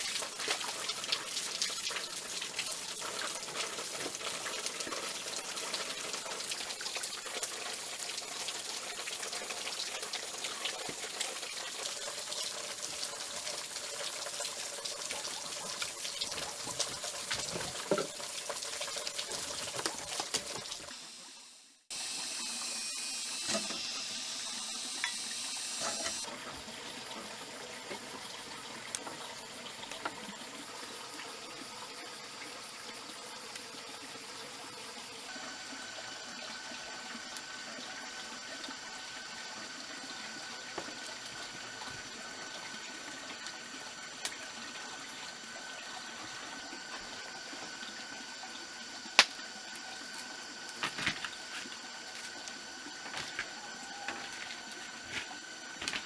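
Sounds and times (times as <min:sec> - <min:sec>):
high-pitched droning tones: 0:21.1 - 0:26.3.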